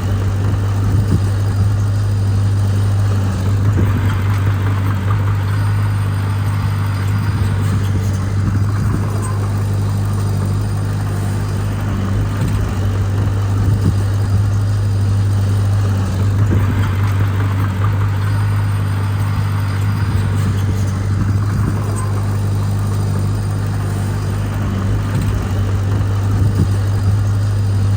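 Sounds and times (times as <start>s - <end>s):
diesel engine running: 0.0s - 27.9s.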